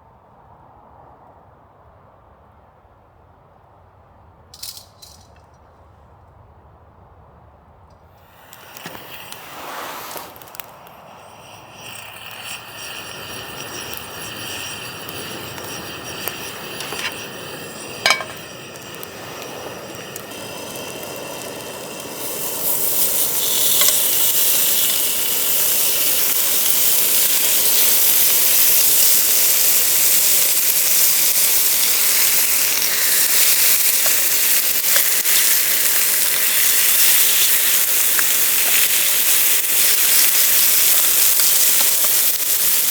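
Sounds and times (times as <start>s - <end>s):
food sizzling in a pan: 8.2s - 42.9s
sharp clink: 10.7s - 19.2s.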